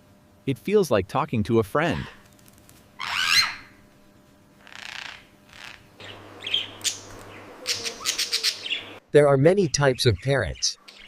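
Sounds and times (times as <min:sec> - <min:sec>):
parrot screeching and chirping: 0:01.9 - 0:02.2, 0:03.0 - 0:03.8, 0:04.6 - 0:09.0.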